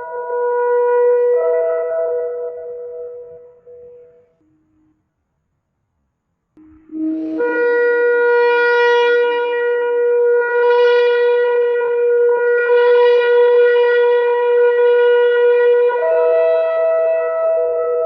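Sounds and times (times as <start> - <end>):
shofar blast: 6.8 - 18.0.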